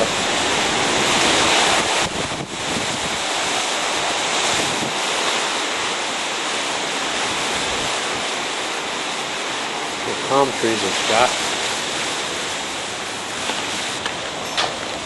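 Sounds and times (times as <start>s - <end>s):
hurricane wind buffeting microphone: 0.0s - 15.0s.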